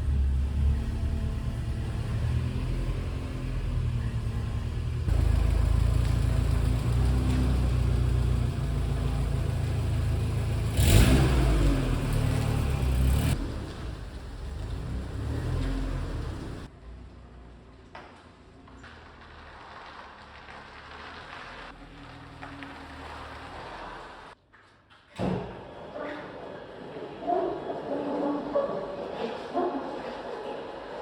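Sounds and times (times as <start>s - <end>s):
car engine running: 0.0s - 16.7s.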